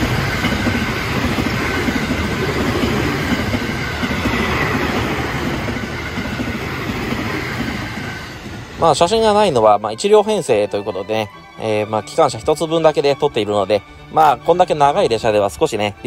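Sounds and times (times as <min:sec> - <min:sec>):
train wheels rushing on rails: 0:00.0 - 0:16.0.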